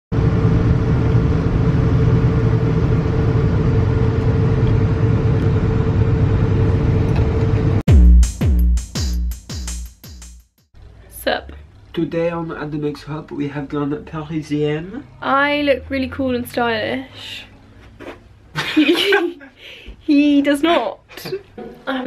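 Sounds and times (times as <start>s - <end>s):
electronic sting with bass hits: 7.9s - 9.8s.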